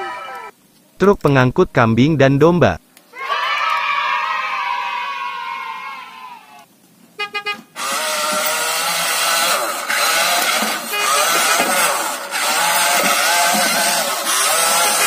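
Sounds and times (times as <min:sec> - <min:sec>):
toy truck motor whirring: 0:07.8 - 0:15.0.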